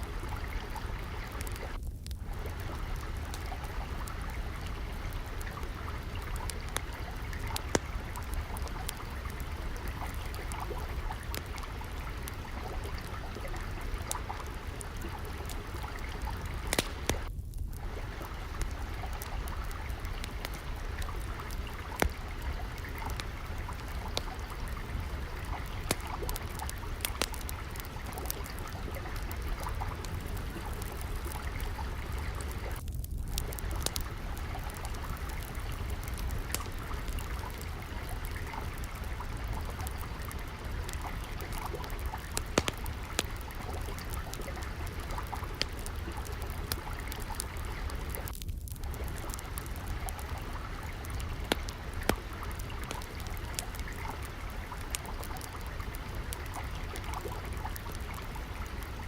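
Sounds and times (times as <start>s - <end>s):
log fire crackling: 0.0s - 59.0s
water trickling: 0.0s - 59.0s.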